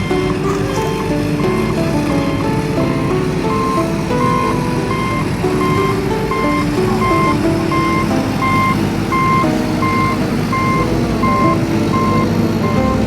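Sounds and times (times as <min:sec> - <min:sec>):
reversing alarm beeping: 0:00.0 - 0:13.0
simple electronic tune: 0:00.0 - 0:13.0.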